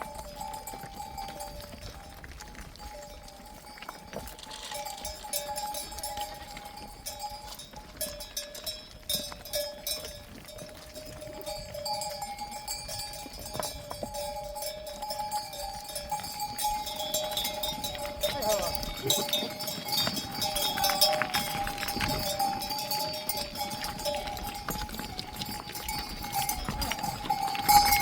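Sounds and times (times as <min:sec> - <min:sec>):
hooves on stony ground: 0:00.0 - 0:28.0
sheep bells clinking: 0:00.0 - 0:28.0.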